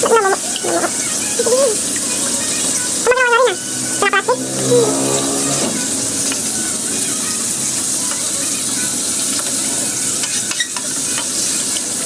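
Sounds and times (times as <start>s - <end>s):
chicken sizzling in hot oil: 7.7s - 12.0s.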